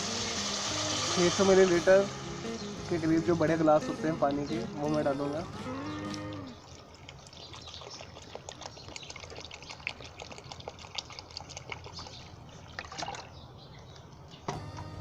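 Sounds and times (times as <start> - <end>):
water pouring into hot pot: 0.0 - 5.3
background music: 0.0 - 6.6, 14.5 - 15.0.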